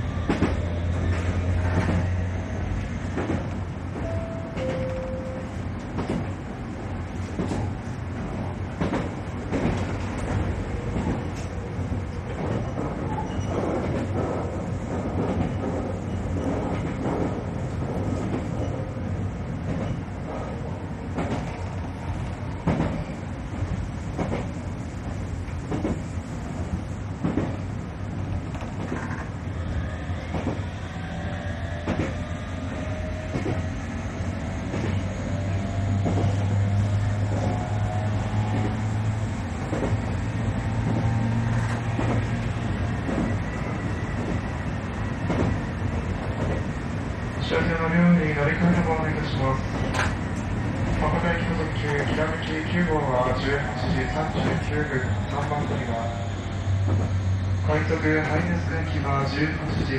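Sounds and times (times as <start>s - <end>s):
train rumble: 0.0s - 59.9s
knocks from the track: 6.0s - 6.3s, 8.8s - 10.3s, 22.6s - 23.0s, 27.2s - 27.6s.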